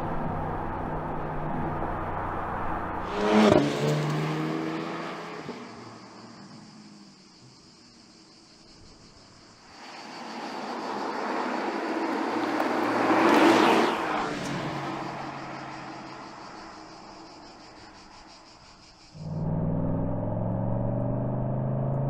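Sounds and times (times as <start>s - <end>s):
car driving past: 0.0s - 6.0s.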